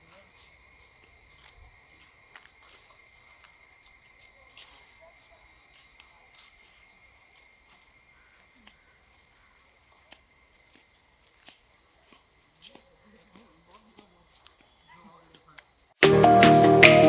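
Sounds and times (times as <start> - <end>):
insects chorus high-pitched drone: 0.0 - 11.6.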